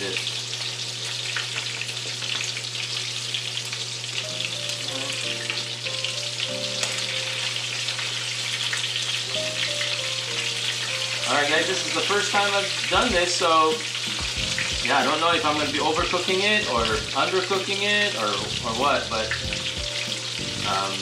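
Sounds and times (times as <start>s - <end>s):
frying sizzling and crackling: 0.0s - 21.0s.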